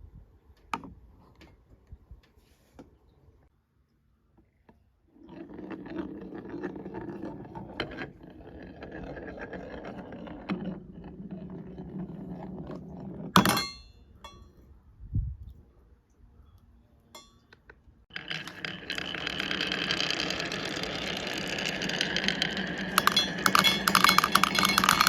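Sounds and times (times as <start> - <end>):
glass marble rolling on wood: 5.1 - 13.8, 18.1 - 25.0
marble clicking over track joints: 5.2 - 13.7, 17.6 - 25.0.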